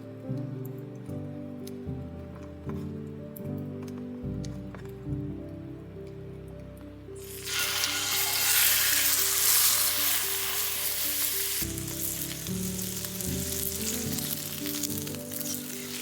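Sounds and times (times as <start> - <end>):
soft background music: 0.0 - 16.0
food sizzling in a pan: 7.2 - 16.0.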